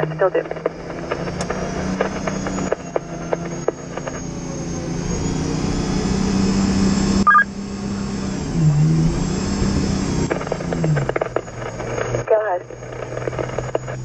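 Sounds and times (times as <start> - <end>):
diesel engine running: 0.0 - 14.0
two-tone electronic beep: 7.2 - 7.5.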